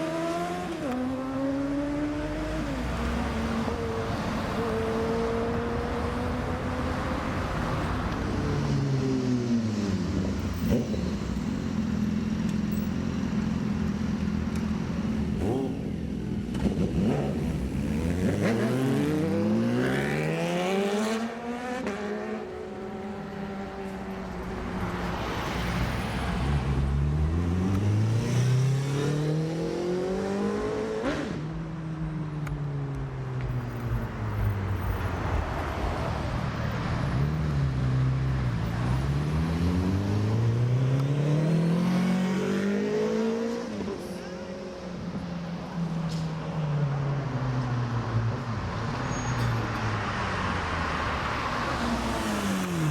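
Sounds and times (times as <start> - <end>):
motorcycles accelerating hard: 0.0 - 11.5, 14.9 - 24.1, 25.2 - 31.7, 39.0 - 44.9, 51.8 - 52.9.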